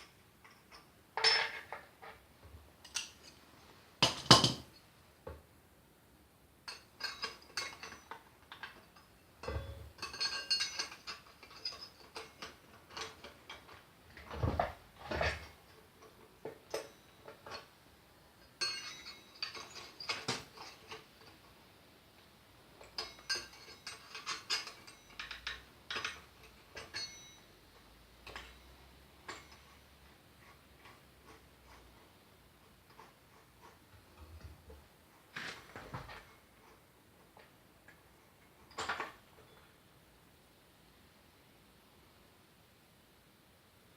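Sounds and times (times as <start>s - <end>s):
metal tools clinking and knocking: 0.0s - 2.2s, 2.8s - 3.4s, 4.0s - 4.8s, 6.7s - 17.8s, 18.4s - 21.6s, 22.8s - 32.0s, 32.9s - 36.8s, 38.6s - 39.8s.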